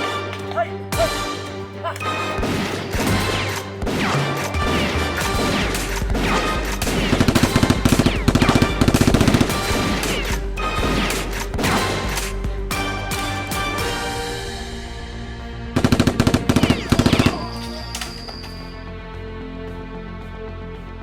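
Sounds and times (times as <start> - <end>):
background music: 0.0 - 21.0
automatic gunfire bursts: 2.9 - 12.0.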